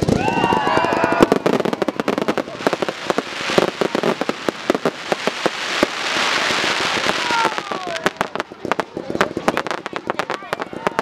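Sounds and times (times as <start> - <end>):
fireworks bangs and cracks: 0.0 - 11.0
fireworks hissing: 0.0 - 11.0.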